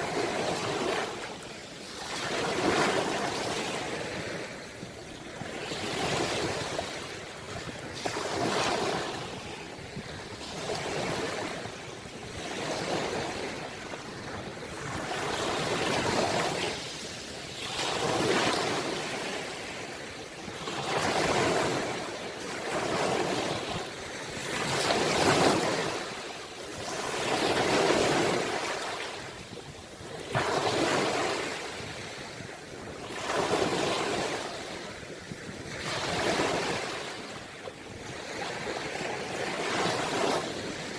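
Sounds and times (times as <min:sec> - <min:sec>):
ocean waves washing ashore: 0:00.0 - 0:40.9.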